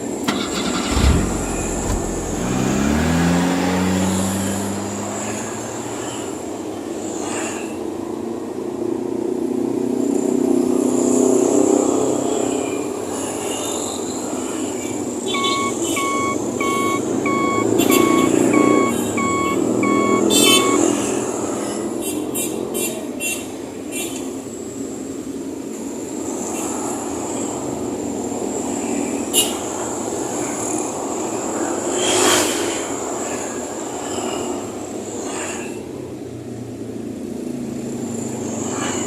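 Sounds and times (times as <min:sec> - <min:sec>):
truck engine running: 0:00.2 - 0:05.7, 0:15.3 - 0:20.9
sharp clicks: 0:00.3 - 0:02.5
reversing alarm beeping: 0:15.3 - 0:21.0.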